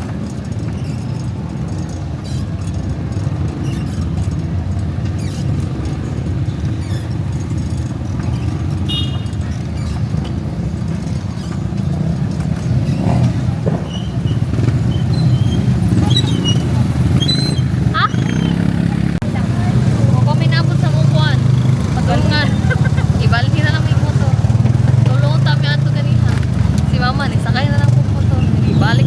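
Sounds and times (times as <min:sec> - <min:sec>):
vehicle engine and road rumble: 0:00.0 - 0:29.0.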